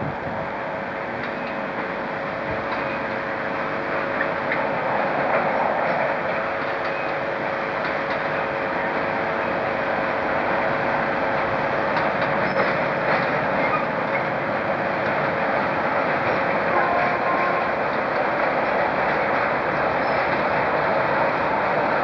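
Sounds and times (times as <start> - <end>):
freight train rail rumble: 0.0 - 22.0
wheels clicking over rail joints: 2.6 - 7.2, 11.8 - 15.4.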